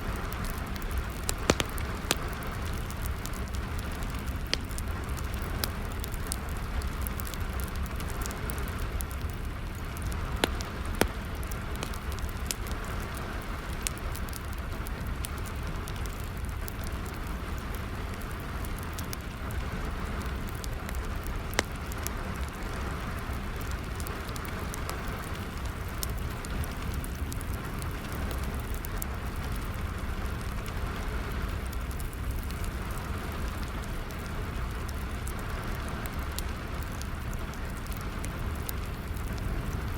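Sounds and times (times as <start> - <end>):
steady rain: 0.0 - 39.9
wood fire crackling: 0.0 - 39.9
loud sharp fire pops: 0.1 - 17.2.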